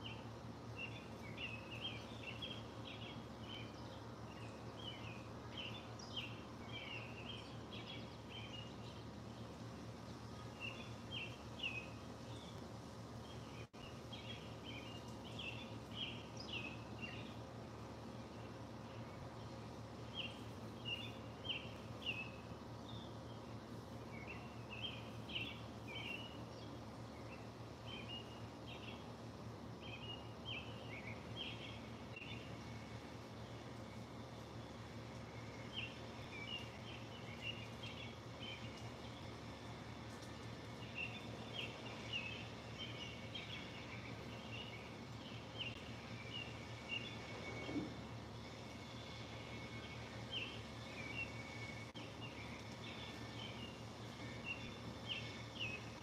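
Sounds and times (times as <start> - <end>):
birds chirping: 0.0 - 56.0
steady low hum: 0.0 - 56.0.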